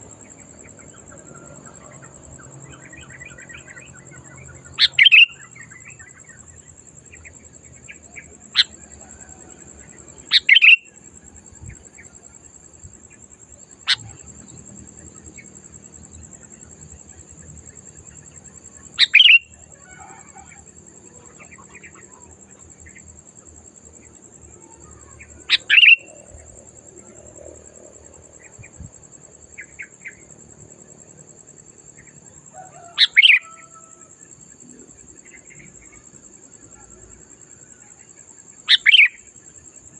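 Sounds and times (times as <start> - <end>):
bird calls: 0.0 - 6.5, 10.3 - 10.9, 19.0 - 20.6, 24.9 - 26.2, 32.7 - 33.8, 38.7 - 39.3
bird chirps: 0.2 - 6.5, 9.9 - 11.0, 19.0 - 20.5, 24.9 - 26.4, 38.7 - 39.3.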